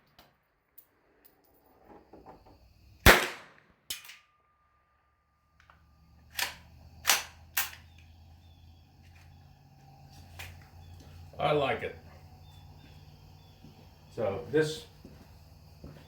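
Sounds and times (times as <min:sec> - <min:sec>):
pistol shots: 0:03.0 - 0:04.1, 0:06.3 - 0:07.8.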